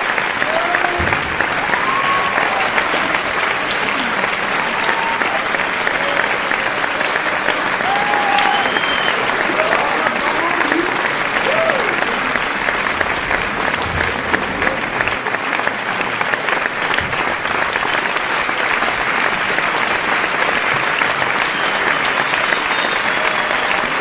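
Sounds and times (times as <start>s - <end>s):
crowd applauding: 0.0s - 24.0s.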